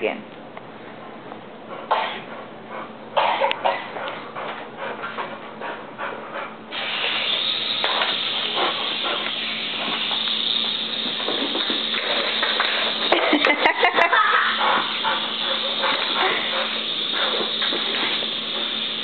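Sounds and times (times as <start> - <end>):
toy helicopter rushing hiss: 6.7 - 19.0.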